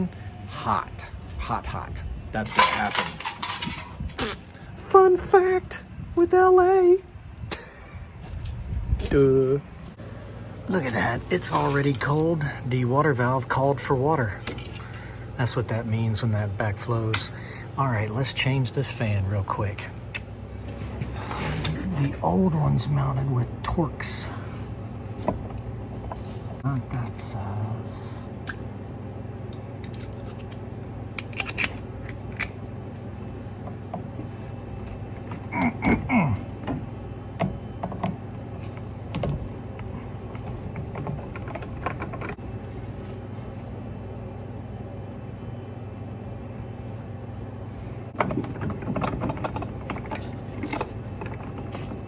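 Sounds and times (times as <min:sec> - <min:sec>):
steady low hum: 0:00.0 - 0:52.0
metal tools clinking: 0:02.4 - 0:04.2, 0:14.3 - 0:15.8.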